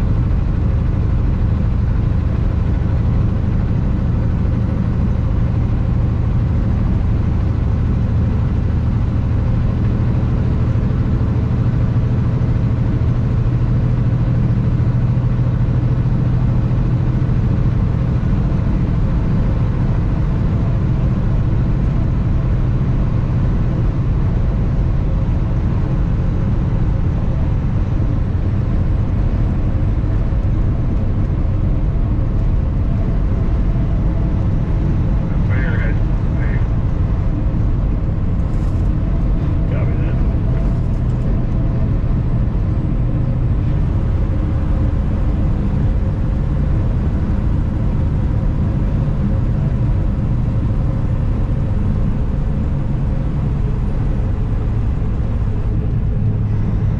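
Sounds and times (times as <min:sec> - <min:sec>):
truck diesel engine drone: 0:00.0 - 0:56.9
road and wind noise hiss: 0:19.0 - 0:56.9.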